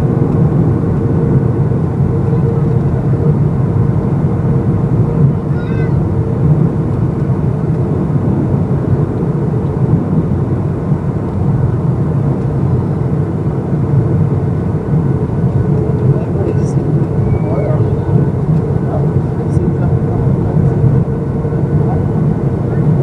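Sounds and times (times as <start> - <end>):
airflow rushing in aircraft cabin: 0.0 - 23.0
jet engines humming: 0.0 - 23.0
steady low tone: 11.0 - 23.0.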